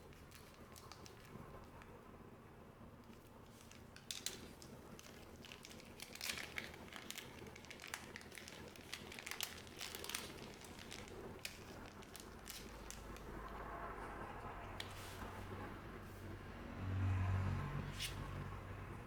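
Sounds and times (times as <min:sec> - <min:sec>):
wrappers crinkling: 0:00.0 - 0:02.0, 0:03.0 - 0:13.8.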